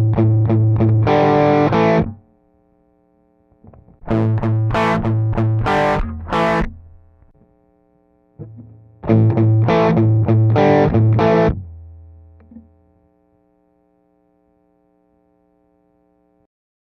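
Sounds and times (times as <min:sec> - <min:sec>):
distorted electric guitar chords: 0:00.0 - 0:02.3, 0:03.5 - 0:07.6, 0:08.2 - 0:12.8
faint steady hum: 0:00.0 - 0:16.5.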